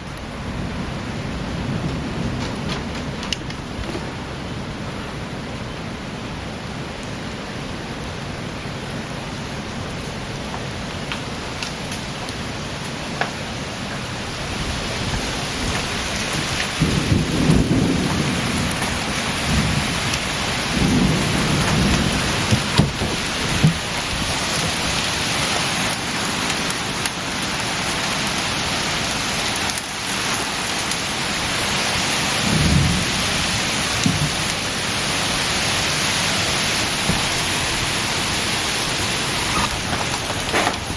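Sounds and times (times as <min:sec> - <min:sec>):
thunder rumbling: 0:00.0 - 0:07.1, 0:14.2 - 0:26.1, 0:30.6 - 0:40.9
heavy rain: 0:00.0 - 0:40.9.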